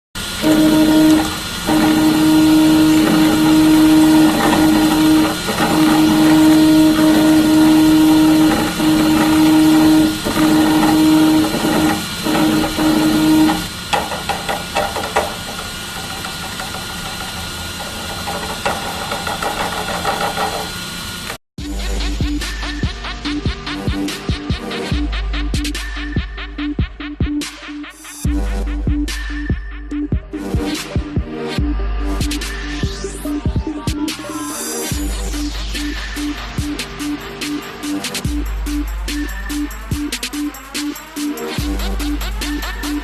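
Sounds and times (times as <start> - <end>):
printer motor humming: 0.2 - 21.4
printer whirring with clicks: 0.2 - 21.4.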